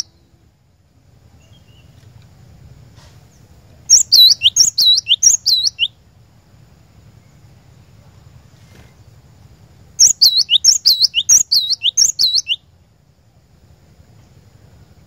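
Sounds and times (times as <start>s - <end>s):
bird whistling song: 0.0s - 0.3s, 1.4s - 2.0s, 3.3s - 6.0s, 10.0s - 12.7s.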